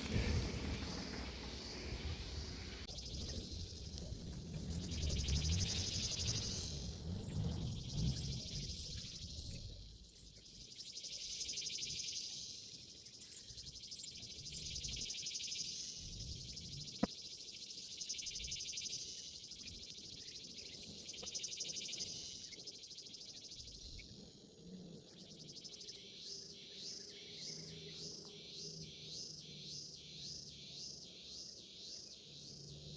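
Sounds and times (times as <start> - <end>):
low rumbling: 0.0 - 8.8
insects buzzing: 0.0 - 32.9.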